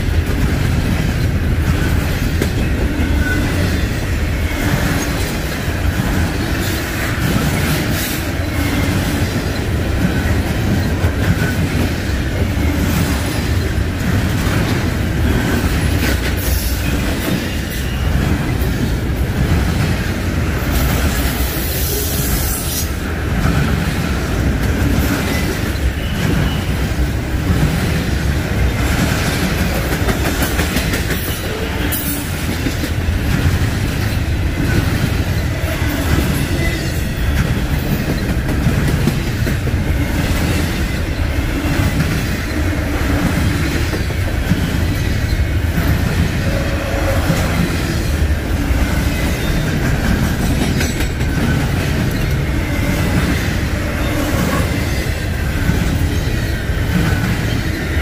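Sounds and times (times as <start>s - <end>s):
freight train wheels rumbling on rail: 0.0s - 58.0s
wheels clicking over rail joints: 23.3s - 58.0s.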